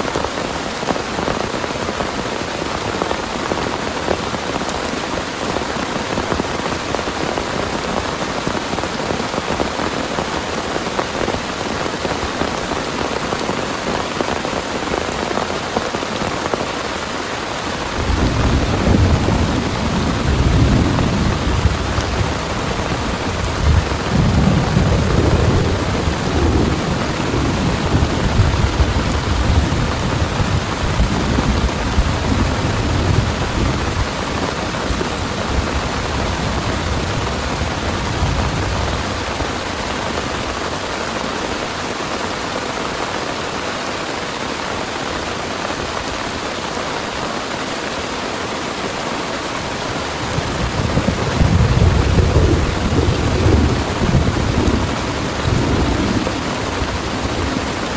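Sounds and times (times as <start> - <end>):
heavy rain falling: 0.0 - 57.9
rolling thunder: 17.8 - 39.8, 50.0 - 57.9.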